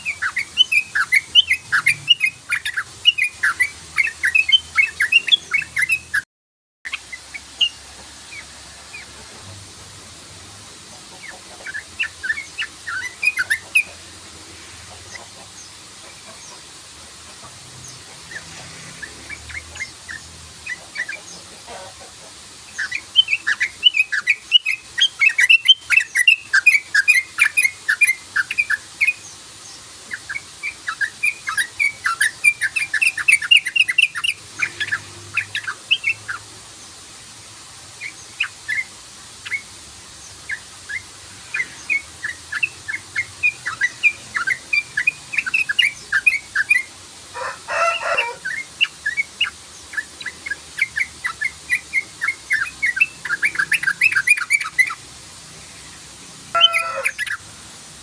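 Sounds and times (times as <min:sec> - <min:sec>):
bird chattering song: 0:00.0 - 0:06.2, 0:11.1 - 0:14.0, 0:17.3 - 0:22.0, 0:22.6 - 0:36.5, 0:38.0 - 0:46.9, 0:47.9 - 0:55.0, 0:56.6 - 0:57.4.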